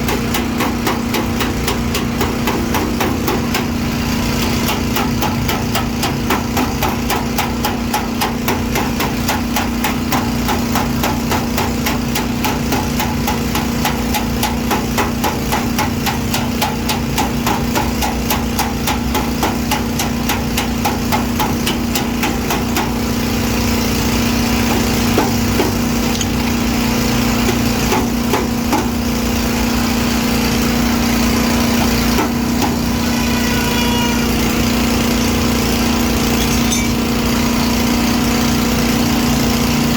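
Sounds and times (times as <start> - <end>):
hammer tapping sheet metal: 0.0 - 23.0, 36.1 - 37.3
steady machine hum: 0.0 - 39.9.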